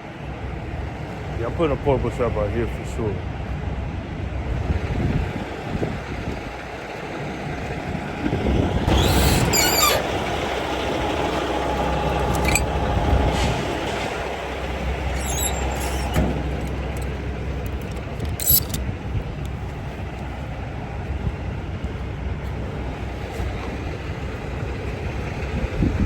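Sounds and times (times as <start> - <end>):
heavy vehicle engine running: 6.2 - 26.0
short squeals and hisses: 8.9 - 10.1, 12.3 - 12.7, 14.8 - 17.1, 18.4 - 18.8.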